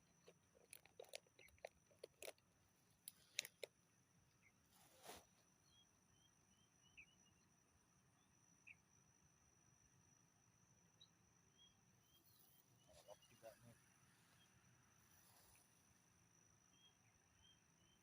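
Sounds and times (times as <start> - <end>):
faint clicks and taps: 0.1 - 2.4, 3.0 - 3.8.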